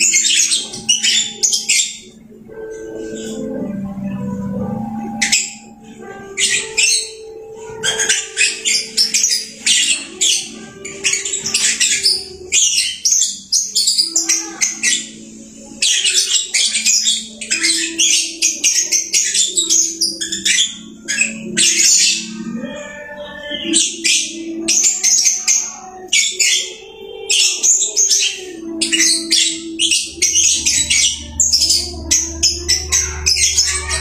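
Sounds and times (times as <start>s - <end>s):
lovebird chattering: 0.0s - 3.9s, 4.7s - 34.0s
steady low tones: 0.0s - 7.8s, 28.5s - 34.0s.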